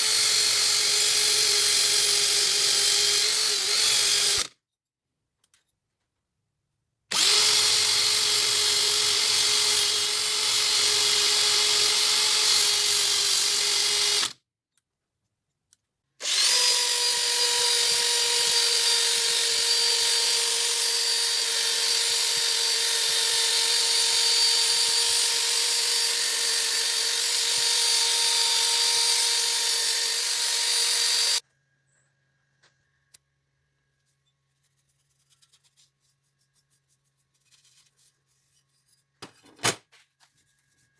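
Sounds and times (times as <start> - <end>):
power tool whining: 0.0 - 4.5, 7.1 - 14.3, 16.2 - 31.4.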